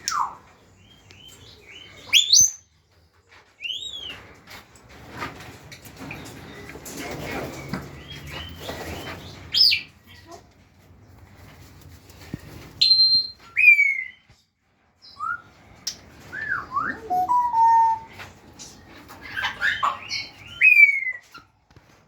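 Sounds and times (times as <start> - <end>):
rustling: 2.9 - 13.7
parrots whistling calls: 16.4 - 18.1
soft parrot chatter: 16.8 - 21.5.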